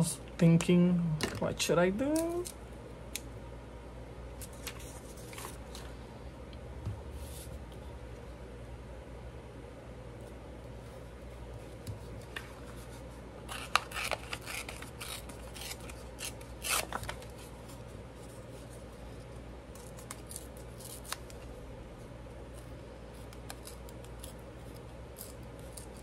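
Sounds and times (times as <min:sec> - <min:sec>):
steady low hum: 0:00.0 - 0:26.0
paper rustling: 0:04.4 - 0:05.9, 0:11.6 - 0:18.8.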